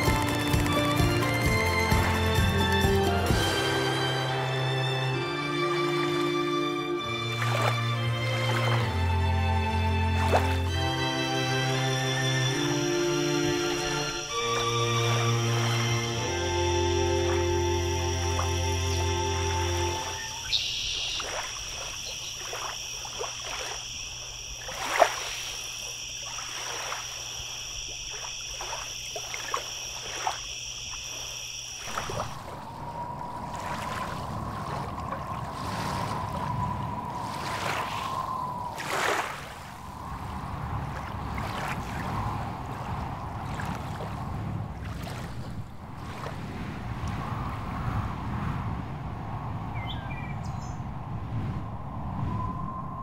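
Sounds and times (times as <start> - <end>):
water: 0.0 - 53.0
wind: 0.0 - 53.0
frogs calling in chorus: 13.2 - 32.6.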